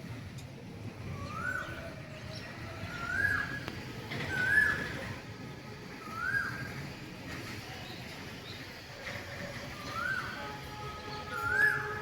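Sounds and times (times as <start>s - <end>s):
bird whistled call: 1.1s - 2.0s, 2.8s - 5.2s, 6.0s - 7.0s, 9.7s - 12.0s.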